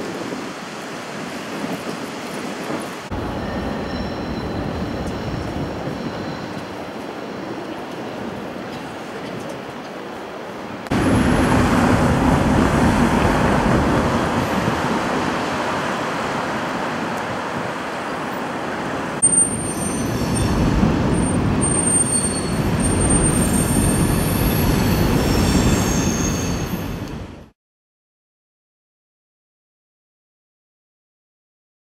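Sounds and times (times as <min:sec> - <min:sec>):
train rumbling past: 0:00.0 - 0:27.5
high-pitched wheel squeals: 0:19.2 - 0:27.0.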